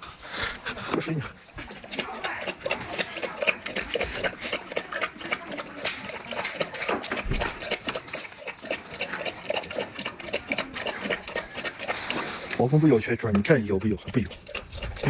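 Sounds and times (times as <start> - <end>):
dog lapping water: 1.2 - 5.2, 9.2 - 15.0.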